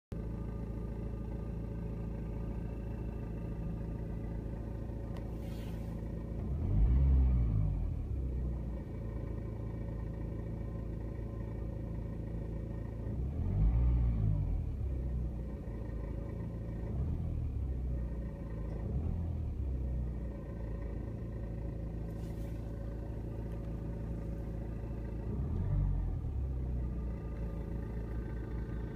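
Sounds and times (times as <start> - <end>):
diesel engine idling with rattle: 0.1 - 28.9
engine revving: 5.4 - 8.3, 13.1 - 15.0, 18.4 - 20.5, 21.2 - 28.9.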